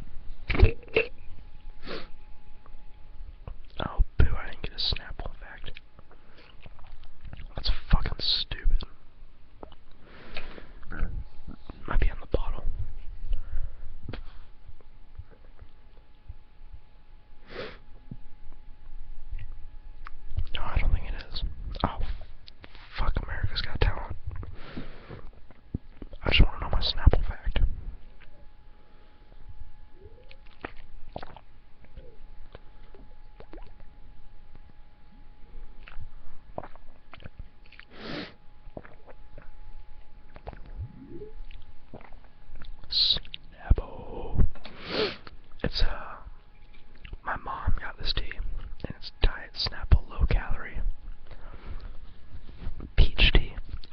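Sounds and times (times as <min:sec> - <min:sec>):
person chewing food: 0:05.6 - 0:07.5, 0:30.1 - 0:34.8, 0:35.7 - 0:38.0, 0:38.6 - 0:43.5
nose sniff: 0:37.9 - 0:38.4, 0:44.7 - 0:45.3.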